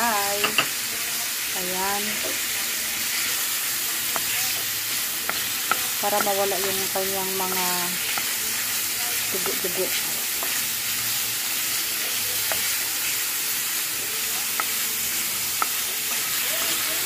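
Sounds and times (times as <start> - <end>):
liver sizzling in hot oil: 0.0 - 17.0
spatula tapping pan: 0.3 - 0.7, 4.0 - 8.4, 9.3 - 10.7, 11.9 - 12.8, 14.3 - 17.0.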